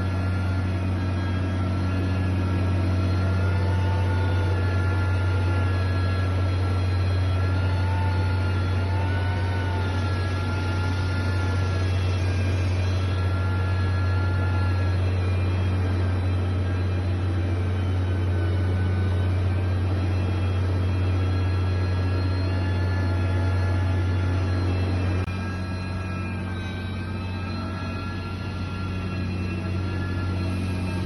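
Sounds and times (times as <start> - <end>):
heavy machine engine droning: 0.0 - 31.0.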